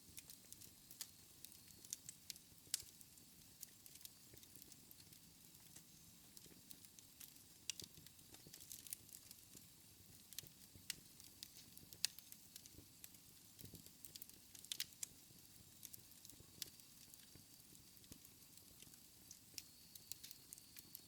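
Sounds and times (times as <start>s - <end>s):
fireplace fire crackling: 0.0s - 21.0s
low rumble of flames: 0.0s - 21.0s.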